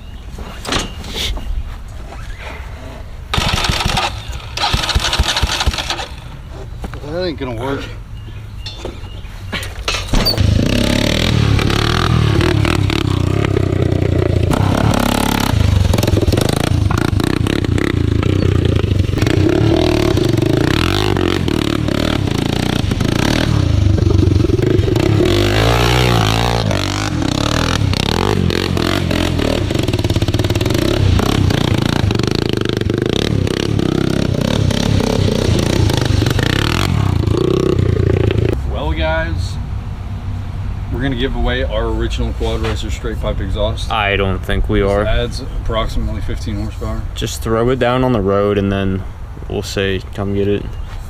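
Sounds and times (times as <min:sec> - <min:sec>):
quad engine revving: 0:03.3 - 0:06.3, 0:10.2 - 0:38.6.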